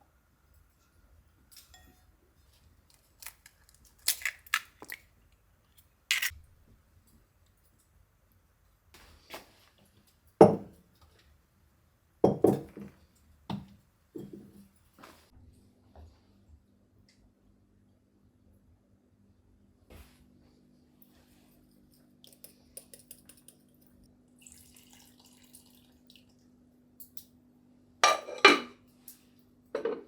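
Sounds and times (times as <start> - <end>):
kitchenware clinking: 28.0 - 28.8, 29.8 - 30.0.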